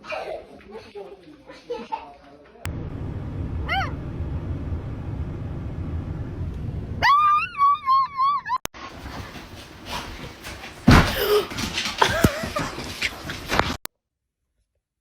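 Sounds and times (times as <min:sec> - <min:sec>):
low rumbling background: 0:02.7 - 0:07.2.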